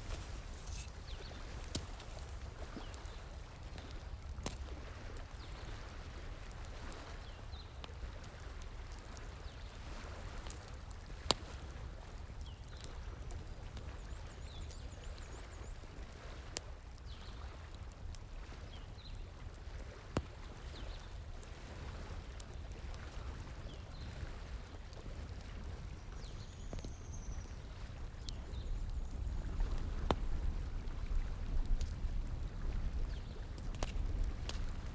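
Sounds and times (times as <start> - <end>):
bonfire crackling and popping: 0.0 - 5.5, 17.7 - 34.9
flowing stream: 0.0 - 7.0.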